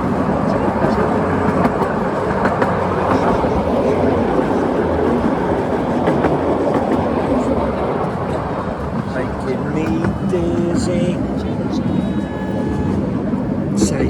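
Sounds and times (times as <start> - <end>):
train wheels clattering on track: 0.0 - 14.0.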